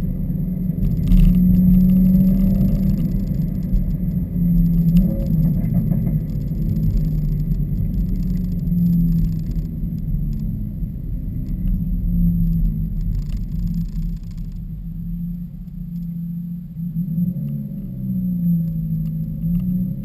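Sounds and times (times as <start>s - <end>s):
car exhaust drone: 0.0s - 20.0s
faint rattles: 0.8s - 10.6s, 11.4s - 15.0s.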